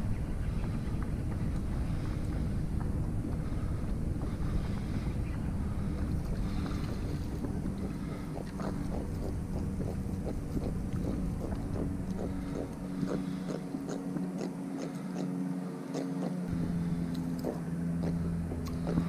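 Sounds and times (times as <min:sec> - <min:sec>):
wind rumble on microphone: 0:00.0 - 0:14.6
boat engine humming: 0:00.0 - 0:19.0.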